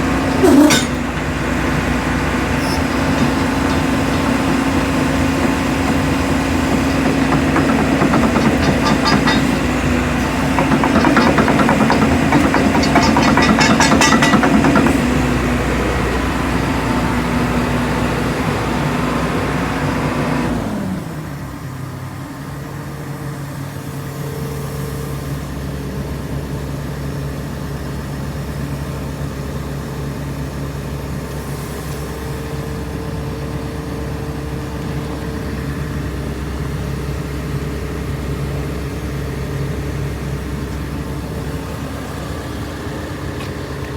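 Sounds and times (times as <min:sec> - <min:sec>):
rapid clattering rattle: 0:00.0 - 0:15.3
excavator diesel engine: 0:00.0 - 0:43.9.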